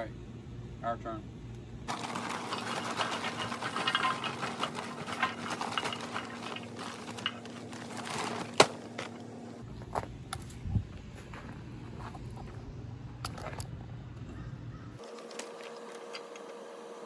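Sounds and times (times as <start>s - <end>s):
charcoal clattering on metal grill: 1.9s - 9.3s.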